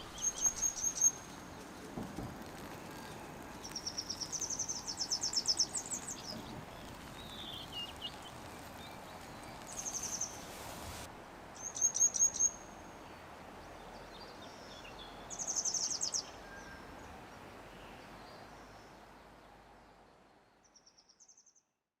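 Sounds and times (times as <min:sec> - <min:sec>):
outdoor background hiss: 0:00.0 - 0:21.5.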